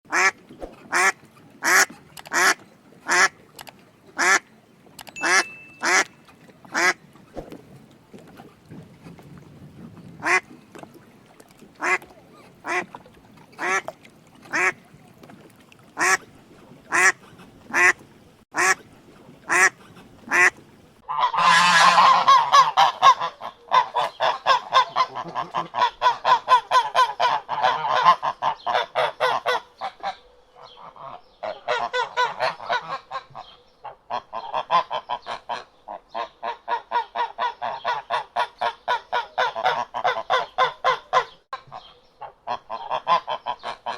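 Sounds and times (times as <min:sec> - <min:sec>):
duck quacking: 0:00.1 - 0:03.4, 0:04.2 - 0:04.4, 0:05.2 - 0:06.1, 0:06.7 - 0:07.0, 0:10.2 - 0:10.5, 0:11.8 - 0:12.0, 0:12.6 - 0:12.9, 0:13.6 - 0:13.9, 0:14.5 - 0:14.8, 0:16.0 - 0:16.2, 0:16.9 - 0:18.0, 0:18.6 - 0:18.8, 0:19.5 - 0:43.9
waterfowl honking and cackling: 0:00.1 - 0:03.5, 0:04.2 - 0:04.5, 0:05.2 - 0:07.2, 0:10.2 - 0:10.5, 0:11.8 - 0:14.8, 0:15.9 - 0:16.2, 0:16.9 - 0:18.0, 0:18.6 - 0:18.9, 0:19.5 - 0:43.9.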